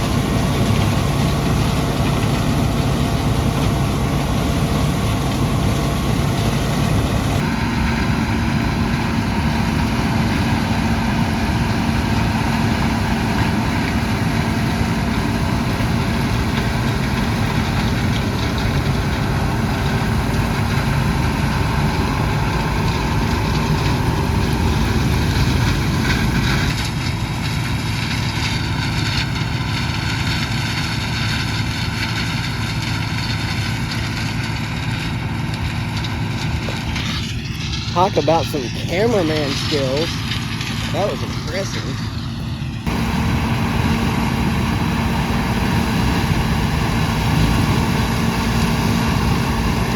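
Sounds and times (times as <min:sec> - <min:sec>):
combine engine drone: 0:00.0 - 0:49.9.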